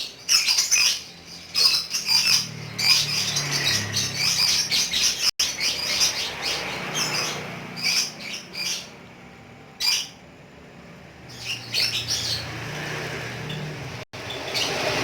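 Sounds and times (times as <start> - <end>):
lovebird chirping and squawking: 0.0 - 9.0, 9.8 - 10.2, 11.3 - 12.8.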